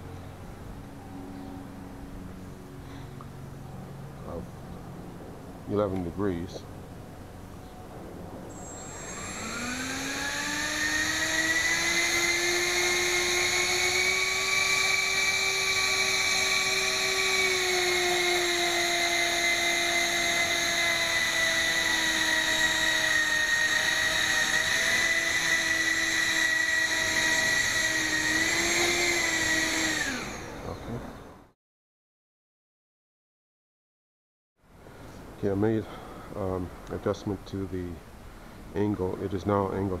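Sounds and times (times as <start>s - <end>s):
electric ducted fans whining: 0.0s - 31.5s.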